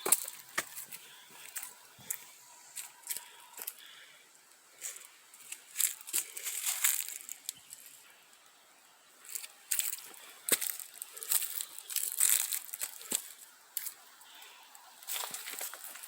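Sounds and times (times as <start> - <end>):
footsteps on dry leaves: 0.0 - 4.0, 4.8 - 8.1, 9.2 - 14.1, 15.0 - 16.0
twigs snapping: 4.8 - 8.0, 9.2 - 14.0.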